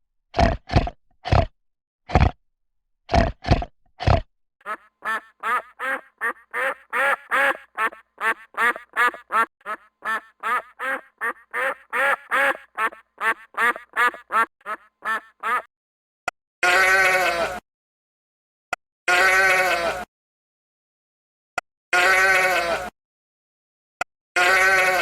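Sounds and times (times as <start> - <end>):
duck quacking: 4.6 - 15.7
deep animal calls: 4.7 - 15.7.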